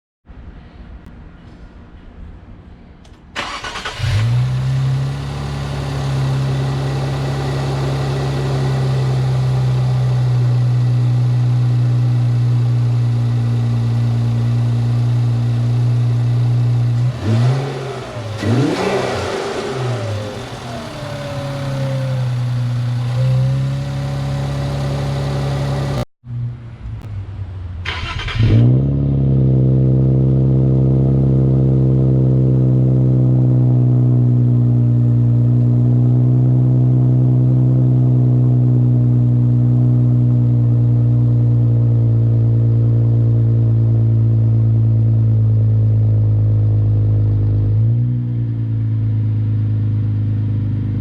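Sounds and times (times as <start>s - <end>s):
car engine starting and idling: 3.1s - 26.1s, 27.7s - 37.7s
car engine revving: 3.4s - 26.1s, 27.9s - 35.2s.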